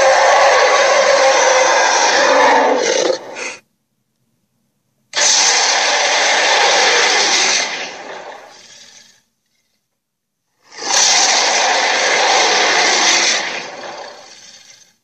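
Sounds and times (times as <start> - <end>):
rough creature roar: 0.0 - 3.6, 5.2 - 9.2, 10.6 - 14.9.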